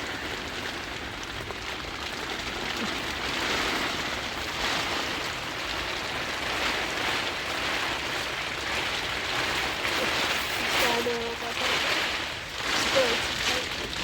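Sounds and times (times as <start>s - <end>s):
heavy rain on a tent: 0.0s - 14.0s.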